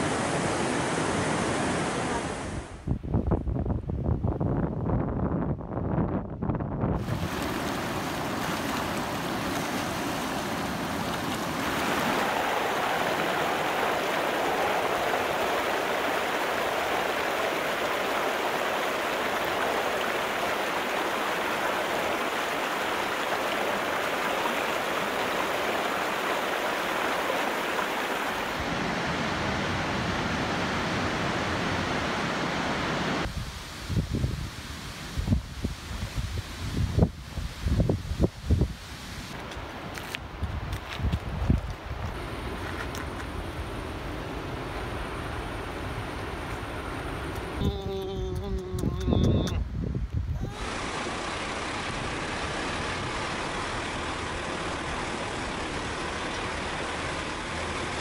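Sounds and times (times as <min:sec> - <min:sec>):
river rushing over rocks: 0:07.0 - 0:33.3, 0:50.5 - 0:58.0.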